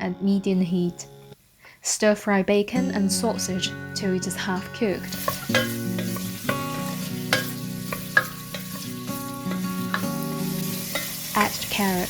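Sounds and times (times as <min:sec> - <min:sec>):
soft background music: 0:00.0 - 0:01.4, 0:02.6 - 0:12.0
bacon and sausage sizzling in oil: 0:04.8 - 0:12.0
utensil clicking against pan: 0:05.1 - 0:10.3, 0:10.9 - 0:11.6.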